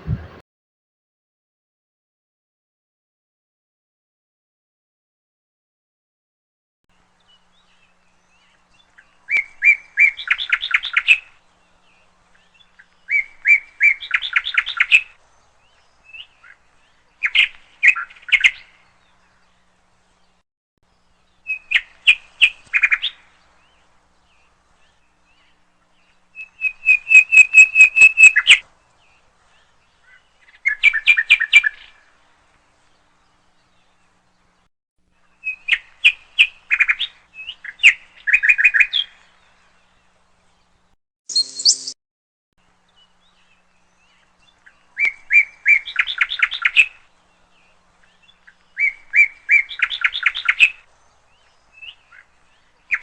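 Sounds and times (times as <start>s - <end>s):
bird chirping and trilling: 26.4s - 28.6s, 41.3s - 42.0s.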